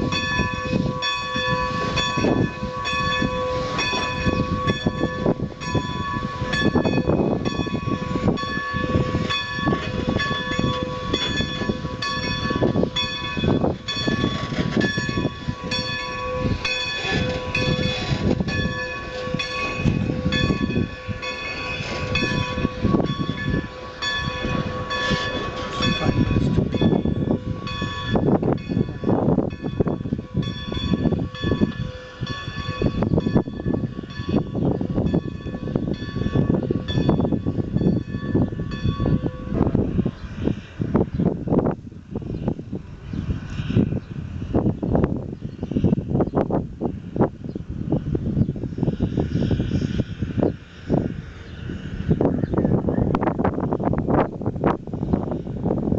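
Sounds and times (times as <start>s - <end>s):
locomotive bell ringing: 0.0s - 40.6s
low rumbling of train: 0.0s - 55.9s.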